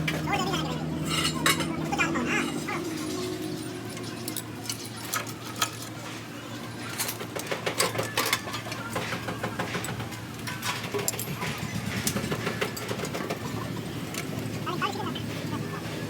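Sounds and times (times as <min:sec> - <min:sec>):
metal tools clinking: 0:01.0 - 0:06.0.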